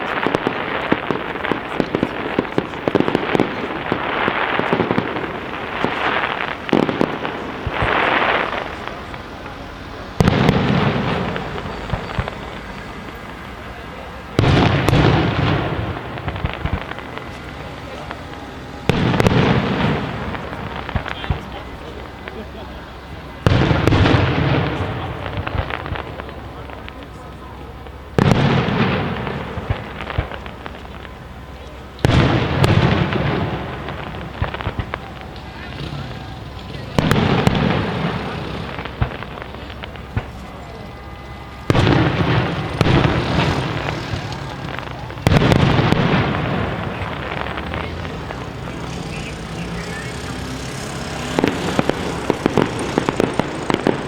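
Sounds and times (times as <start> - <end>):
fireworks bursting: 0.0 - 54.0
rolling rumble: 0.0 - 54.0
sharp crackles: 0.0 - 54.0
sharp firework bangs: 0.0 - 54.0
firework shells bursting: 27.8 - 54.0.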